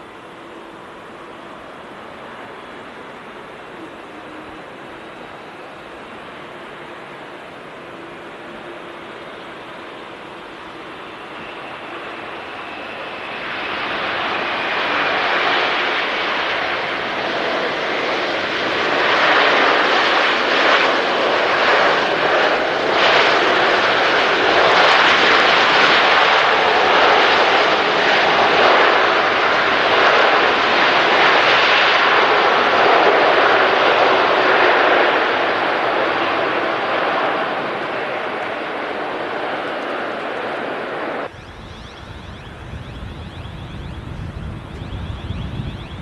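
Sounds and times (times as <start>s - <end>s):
jet airliner engine roar: 0.0s - 46.0s
high whine falling in pitch: 39.8s - 46.0s.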